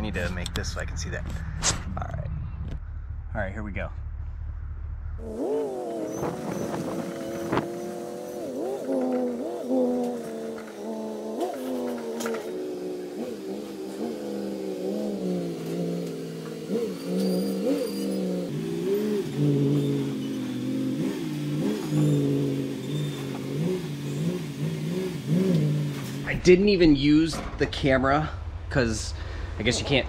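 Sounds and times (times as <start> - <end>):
engine throttle blips: 0.0 - 27.1
car engine running under load: 4.0 - 26.6.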